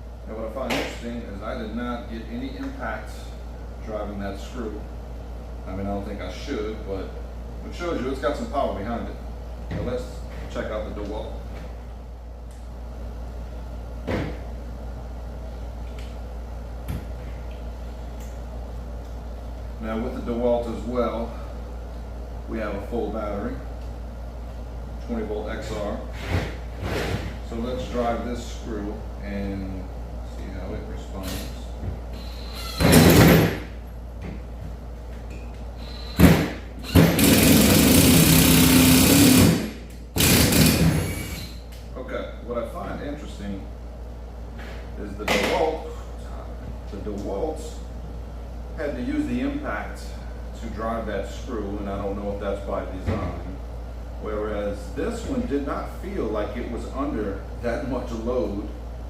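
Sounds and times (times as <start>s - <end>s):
steady low hum: 0.0s - 59.0s
impact wrench driving screw into wood: 32.6s - 33.6s, 36.0s - 41.5s.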